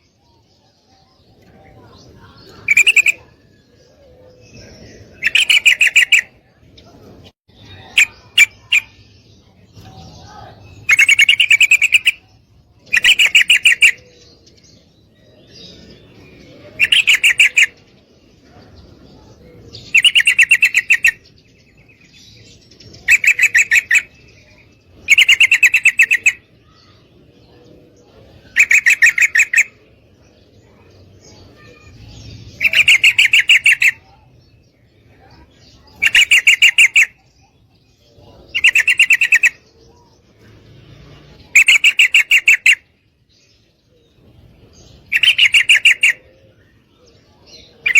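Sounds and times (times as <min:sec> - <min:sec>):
bird chattering calls: 0:02.5 - 0:03.5, 0:05.1 - 0:06.4, 0:07.6 - 0:09.1, 0:09.8 - 0:14.2, 0:16.7 - 0:17.9, 0:19.8 - 0:21.3, 0:23.0 - 0:27.0, 0:28.4 - 0:29.8, 0:31.5 - 0:34.3, 0:35.2 - 0:37.6, 0:38.2 - 0:39.7, 0:41.4 - 0:42.9, 0:45.0 - 0:46.5.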